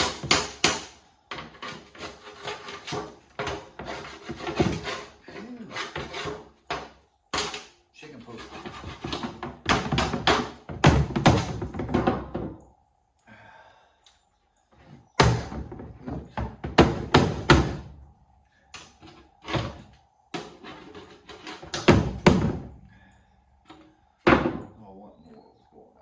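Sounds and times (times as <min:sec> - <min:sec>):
shovel scraping and knocking: 0:01.3 - 0:07.6.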